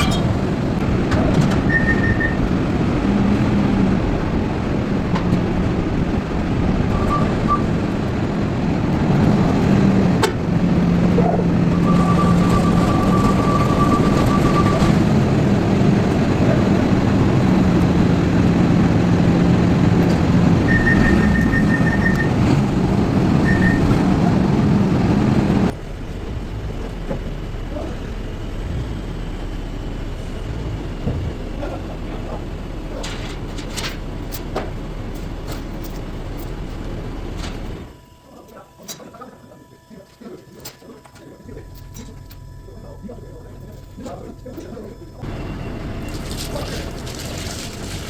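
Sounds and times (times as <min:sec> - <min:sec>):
heavy machine engine running: 0:00.0 - 0:48.0
short electronic beeps: 0:01.6 - 0:02.4, 0:06.9 - 0:07.8, 0:11.7 - 0:15.2, 0:20.6 - 0:22.5, 0:23.4 - 0:24.1.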